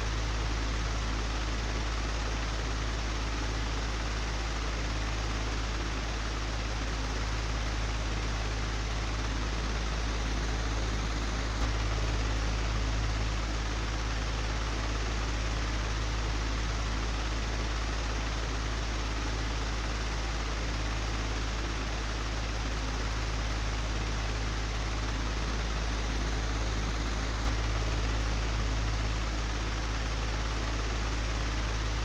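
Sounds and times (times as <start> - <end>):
low motor hum: 0.0 - 32.0.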